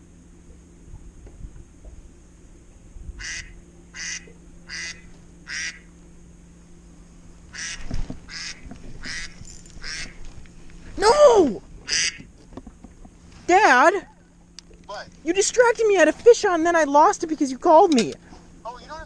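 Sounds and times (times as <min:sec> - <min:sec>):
duck-like quacking: 0:03.2 - 0:05.9, 0:07.5 - 0:10.2, 0:11.8 - 0:12.3.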